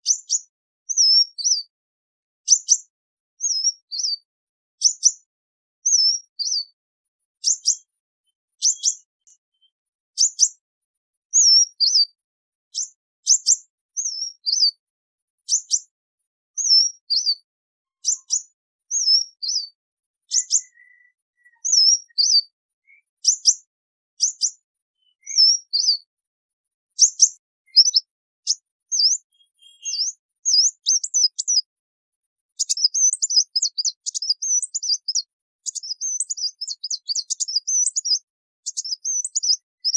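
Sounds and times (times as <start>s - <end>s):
bird high sharp chip calls: 18.0s - 19.7s, 20.3s - 22.4s, 27.0s - 31.6s, 32.6s - 39.9s.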